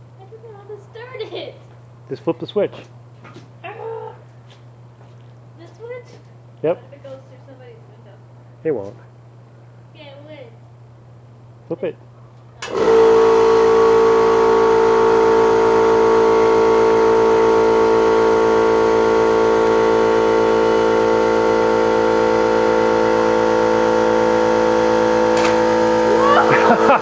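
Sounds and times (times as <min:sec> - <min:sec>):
electric air compressor humming: 0:12.6 - 0:27.0.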